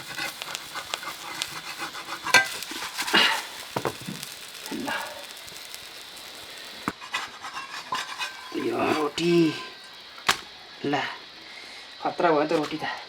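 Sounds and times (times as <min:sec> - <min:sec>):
utensil scraping pan: 0:00.0 - 0:09.9
batter sizzling in hot oil: 0:00.0 - 0:11.4.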